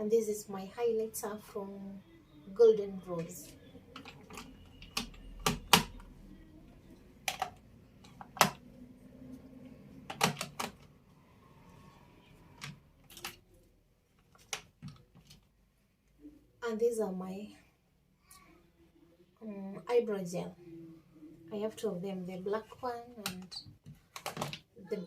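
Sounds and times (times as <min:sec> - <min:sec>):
plastic containers clicking: 0:03.2 - 0:06.1, 0:07.2 - 0:08.6, 0:10.0 - 0:10.8, 0:23.2 - 0:24.7.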